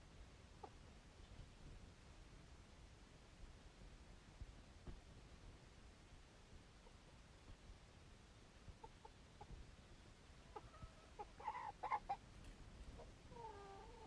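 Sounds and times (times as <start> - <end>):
chickens clucking: 8.7 - 9.6, 10.4 - 14.0.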